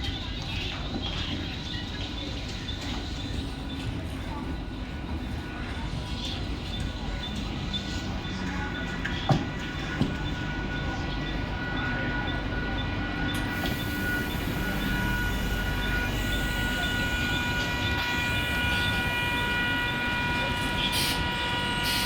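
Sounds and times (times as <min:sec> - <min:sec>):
electric train rumbling past: 0:00.9 - 0:22.0.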